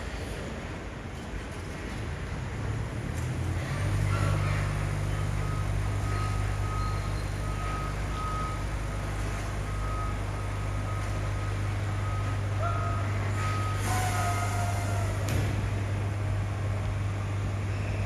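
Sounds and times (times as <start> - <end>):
diesel engine drone: 0.0 - 18.0
reversing alarm beeping: 5.4 - 15.2.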